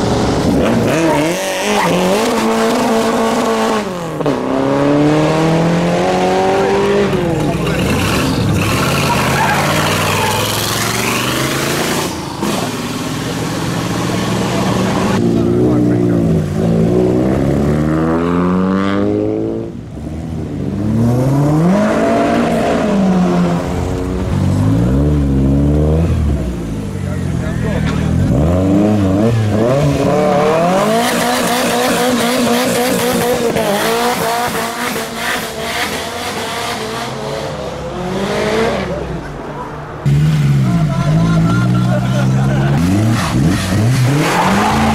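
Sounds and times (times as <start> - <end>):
car engine revving: 0.0 - 44.9
tyres squealing: 7.3 - 11.6.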